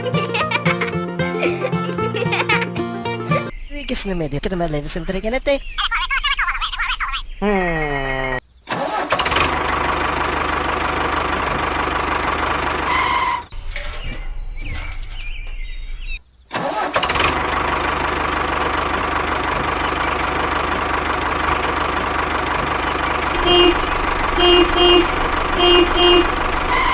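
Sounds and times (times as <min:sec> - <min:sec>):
engine running steadily: 0:09.2 - 0:13.4, 0:17.1 - 0:26.9.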